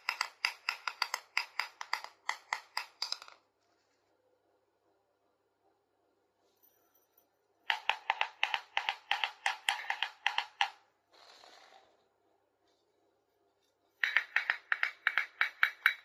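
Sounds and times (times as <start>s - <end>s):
plastic toy pieces clicking: 0.0s - 3.4s, 7.7s - 10.8s, 14.0s - 16.0s.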